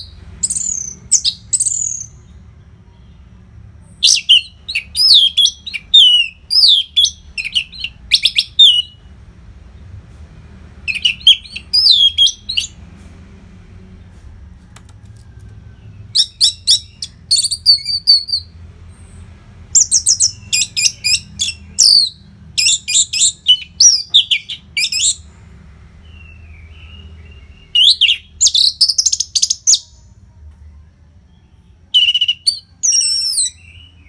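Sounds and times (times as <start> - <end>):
thrush singing: 10.7 - 12.8
faint low hum: 29.6 - 34.0.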